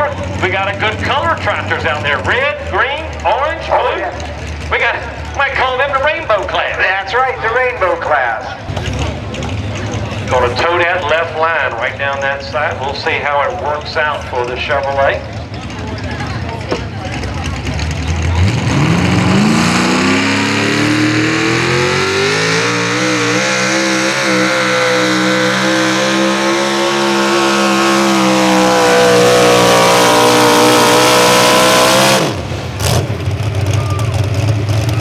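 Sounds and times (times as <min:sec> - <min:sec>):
engine at full throttle: 0:07.6 - 0:12.5, 0:13.6 - 0:35.0.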